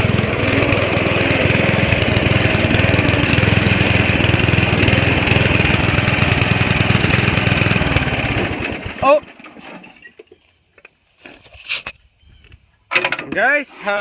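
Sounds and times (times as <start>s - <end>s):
riding lawn mower engine: 0.0s - 10.5s.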